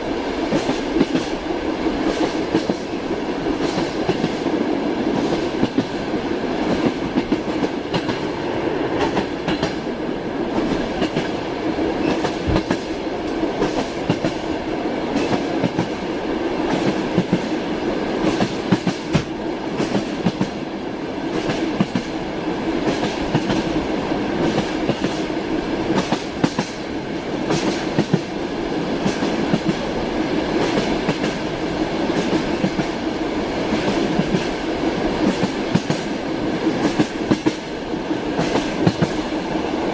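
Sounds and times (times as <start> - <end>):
train rumble: 0.0 - 39.9
train wheels clacking over rail joints: 25.9 - 26.8, 27.5 - 28.3.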